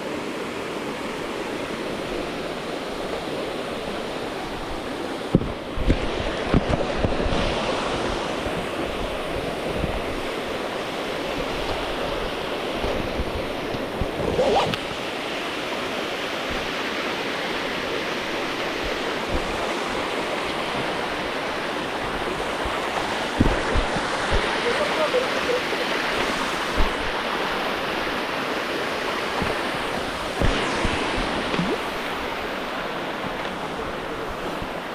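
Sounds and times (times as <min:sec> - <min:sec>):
waterfall rushing: 0:14.2 - 0:34.9.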